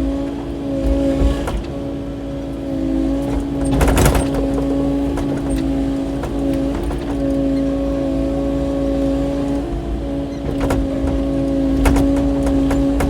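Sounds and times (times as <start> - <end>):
excavator engine and hydraulics: 0.0 - 13.0
clattering: 3.3 - 7.6, 9.6 - 13.0.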